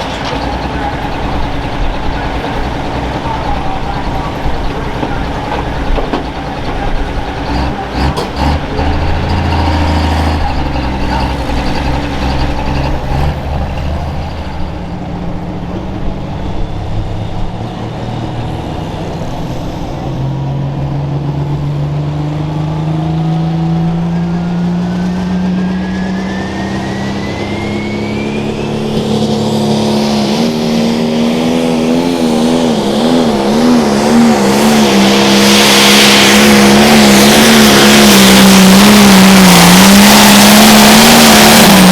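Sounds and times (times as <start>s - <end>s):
diesel tractor engine running hard: 0.0s - 41.9s
high turbo whistle: 24.0s - 41.9s.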